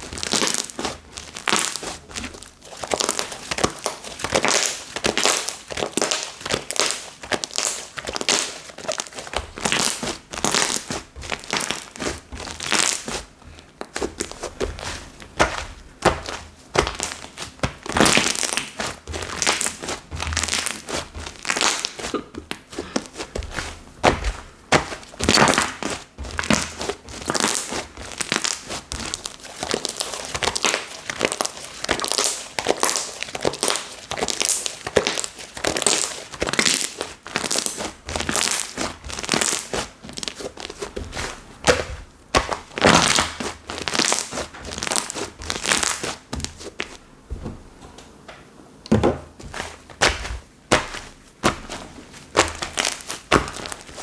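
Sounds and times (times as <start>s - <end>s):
slime squishing pops and squelches: 13.8s - 46.6s, 49.4s - 54.0s.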